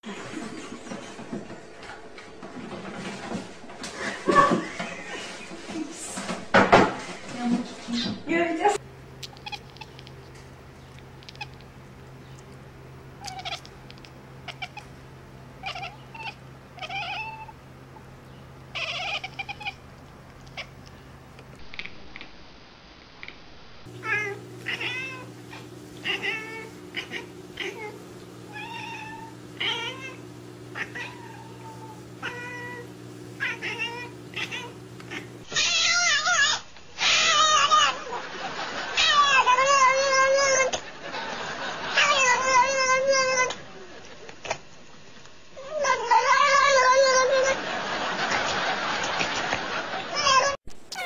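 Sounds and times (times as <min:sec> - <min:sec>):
cats meowing: 0:09.2 - 0:10.1, 0:11.2 - 0:11.7, 0:13.2 - 0:15.0, 0:15.6 - 0:17.6, 0:18.7 - 0:20.9, 0:24.0 - 0:38.0, 0:39.0 - 0:40.8, 0:42.0 - 0:43.6, 0:45.6 - 0:47.6, 0:50.2 - 0:51.0.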